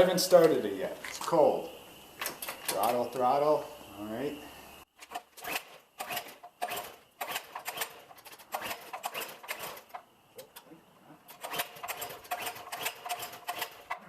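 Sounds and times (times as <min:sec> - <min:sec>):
recoil starter cranking engine: 0:05.0 - 0:14.0.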